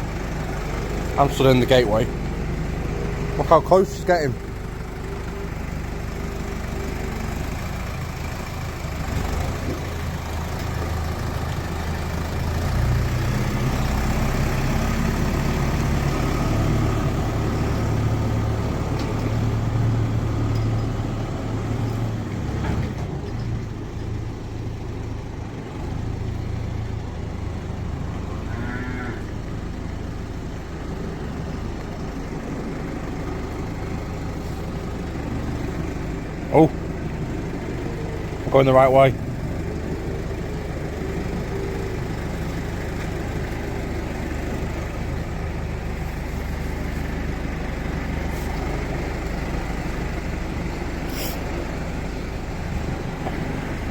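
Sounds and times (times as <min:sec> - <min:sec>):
tractor engine running: 0:00.0 - 0:53.9.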